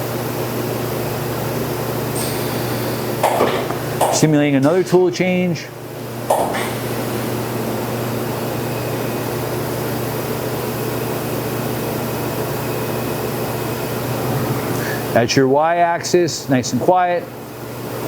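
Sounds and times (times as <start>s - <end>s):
machine whirring with low hum: 0.0s - 18.0s
machine clatter: 2.1s - 5.3s, 6.3s - 8.0s.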